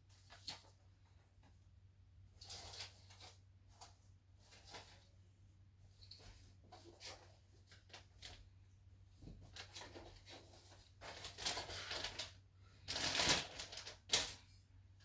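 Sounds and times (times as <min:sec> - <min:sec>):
rustling of parts and packaging: 0:09.2 - 0:14.5.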